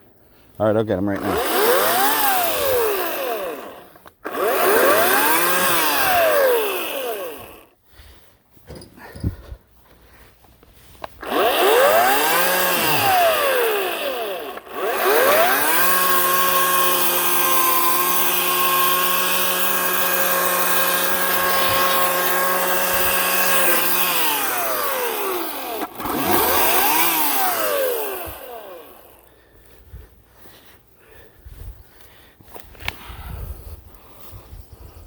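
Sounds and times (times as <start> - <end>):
electric chainsaw motor whining: 1.0 - 7.8, 11.1 - 29.3.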